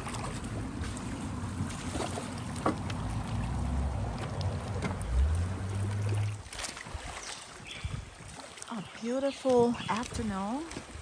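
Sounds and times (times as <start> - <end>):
low rumble: 0.0 - 6.6
water lapping around raft: 0.0 - 11.0.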